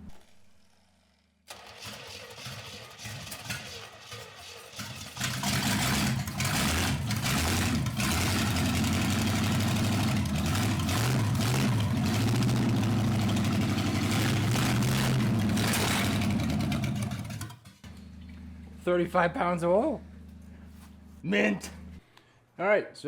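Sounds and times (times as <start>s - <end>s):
engine popping: 4.9s - 19.2s
car engine running: 5.2s - 22.0s.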